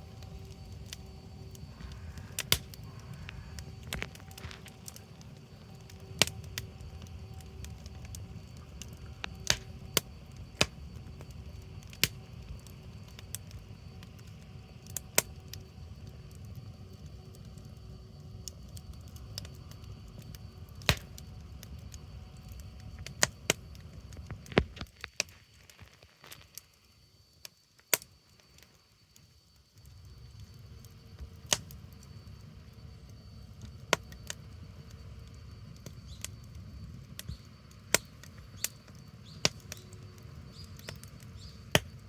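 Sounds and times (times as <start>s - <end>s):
low rumble: 0.0s - 11.6s
sharp fire pops: 0.0s - 13.5s, 20.3s - 21.3s, 35.6s - 42.0s
wood bonfire crackling: 0.0s - 42.0s.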